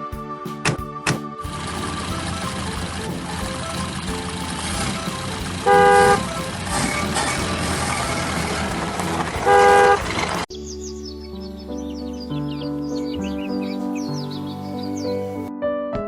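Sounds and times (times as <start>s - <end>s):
vehicle horn honking: 4.7s - 10.2s.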